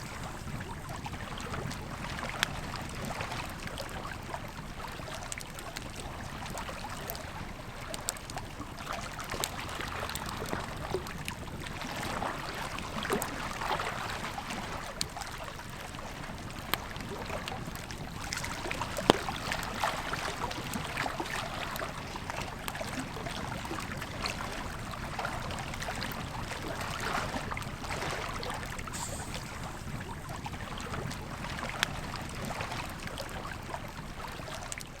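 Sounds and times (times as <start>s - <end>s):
river flowing: 0.0s - 1.5s, 17.1s - 34.8s
campfire crackling and popping: 0.0s - 34.6s.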